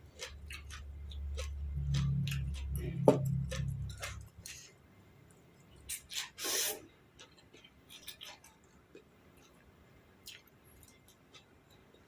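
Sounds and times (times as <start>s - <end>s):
mouth eating noises: 0.0s - 4.7s.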